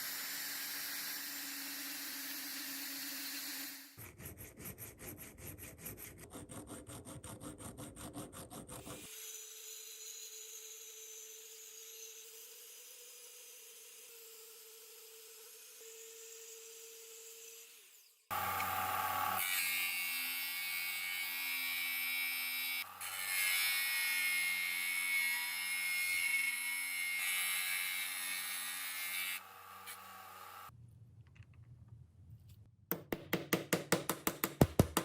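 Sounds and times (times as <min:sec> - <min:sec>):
power tool whining: 0:18.3 - 0:19.5.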